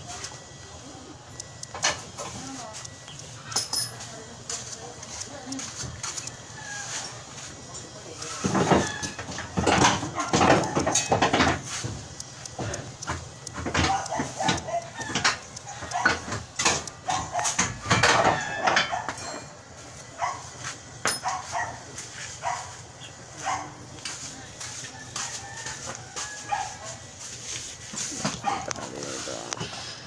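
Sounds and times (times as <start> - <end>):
voices: 0.0 - 30.0
scattered knocks: 8.4 - 19.2.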